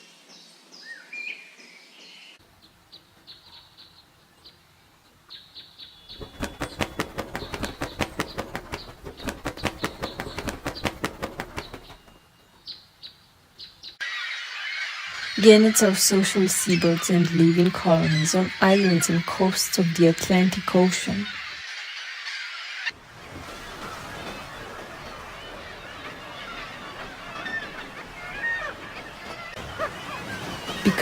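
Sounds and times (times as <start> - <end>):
bird wingbeats: 6.1 - 12.3, 23.0 - 31.0.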